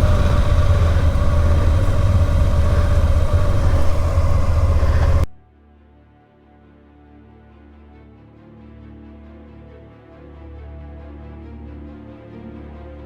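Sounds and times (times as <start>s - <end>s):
steady whine: 0.0s - 5.4s
vehicle engine running: 0.0s - 5.4s.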